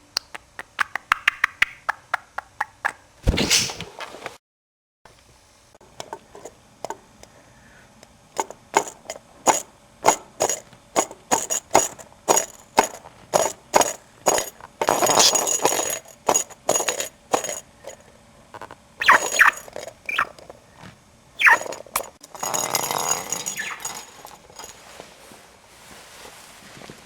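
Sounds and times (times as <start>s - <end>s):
toy balls tapping and knocking: 8.4s - 18.0s, 18.6s - 20.6s, 21.4s - 24.7s
scraping rustle: 18.6s - 27.0s.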